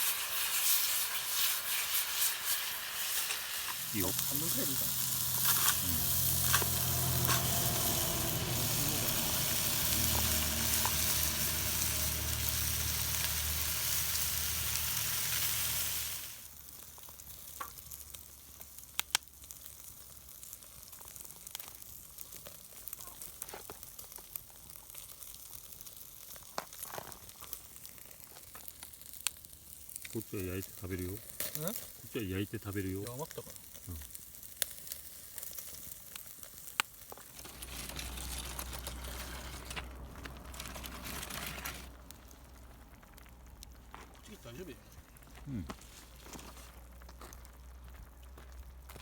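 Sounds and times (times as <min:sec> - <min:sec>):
food sizzling in a pan: 0:00.0 - 0:43.4
small clicks and crackles: 0:16.8 - 0:49.0.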